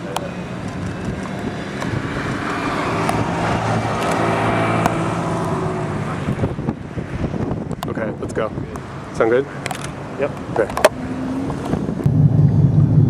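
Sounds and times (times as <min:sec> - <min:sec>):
car engine passing: 0:00.0 - 0:13.0.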